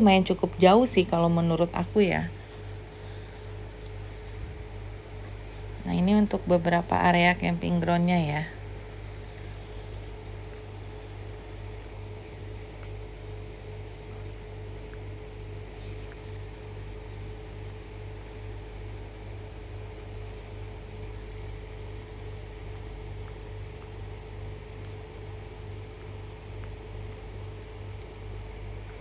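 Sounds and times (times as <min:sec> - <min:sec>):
constant mid-pitched tone: 0:00.0 - 0:15.5.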